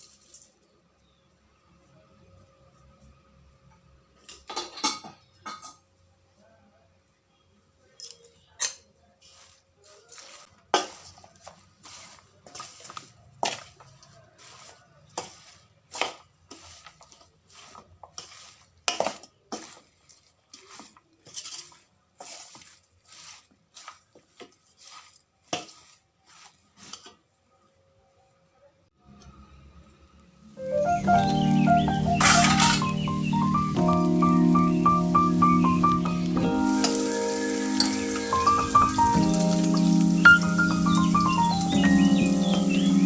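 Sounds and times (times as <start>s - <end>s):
dishes and cutlery clinking: 4.2s - 5.9s, 8.0s - 9.1s, 32.1s - 33.1s, 36.8s - 41.2s.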